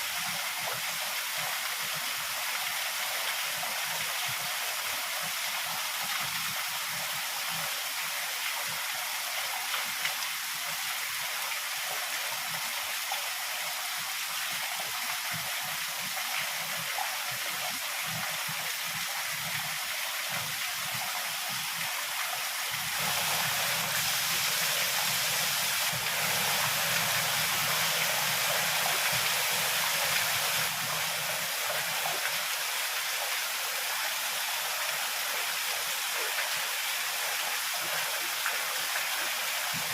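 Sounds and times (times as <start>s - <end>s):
heavy rain hissing: 22.7s - 37.2s.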